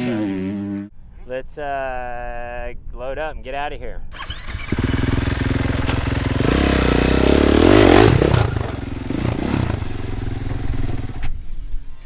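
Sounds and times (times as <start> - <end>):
dirt bike engine revving: 4.1 - 11.3.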